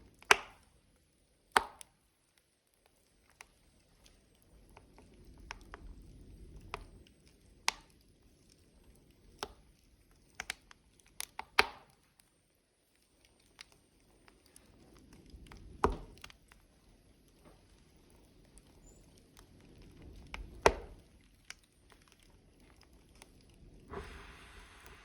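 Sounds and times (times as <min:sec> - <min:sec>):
burning logs crackling: 0:00.0 - 0:25.0
low flickering rumble of flames: 0:00.0 - 0:25.0
soft hiss: 0:12.0 - 0:25.0.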